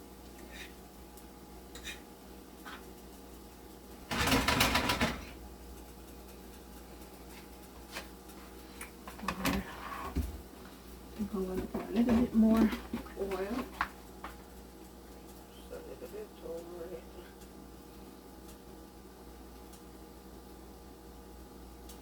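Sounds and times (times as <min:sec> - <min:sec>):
utensil clattering against pan: 0:04.1 - 0:05.4.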